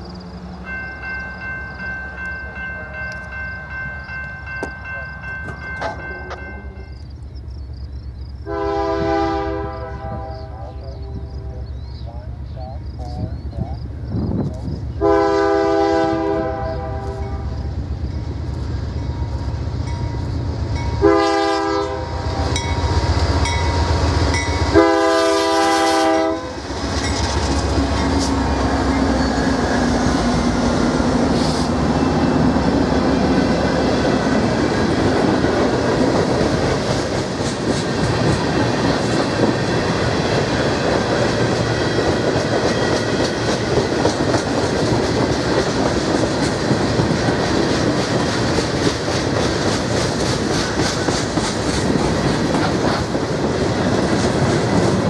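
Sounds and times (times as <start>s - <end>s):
train wheels clacking on rail: 1.0s - 7.0s, 26.6s - 31.8s, 32.4s - 55.0s
locomotive air horn blasts: 8.5s - 11.6s, 15.0s - 17.6s, 21.0s - 22.6s, 24.7s - 26.6s
diesel engines rumbling: 9.2s - 55.0s.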